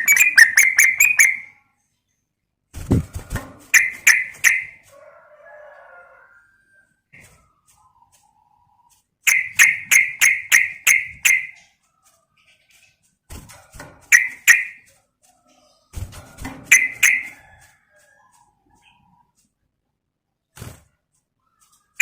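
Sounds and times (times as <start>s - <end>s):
bird chattering calls: 0.0s - 1.5s, 3.7s - 4.8s, 9.2s - 11.6s, 14.1s - 14.8s, 16.7s - 17.3s.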